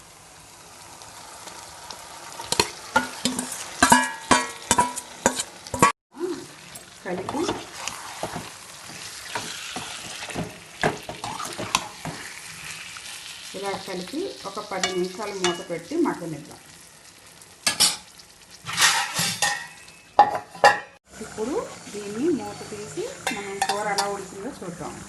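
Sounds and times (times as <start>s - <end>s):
chicken sizzling in hot oil: 0.0s - 25.0s
metal spoon scraping pan: 2.5s - 5.9s, 7.1s - 12.7s, 18.6s - 24.2s.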